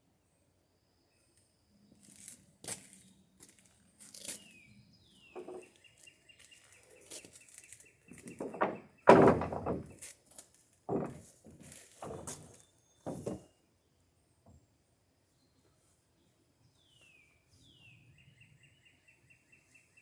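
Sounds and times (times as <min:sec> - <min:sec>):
wooden boards knocking: 0:08.1 - 0:10.0, 0:10.9 - 0:13.4.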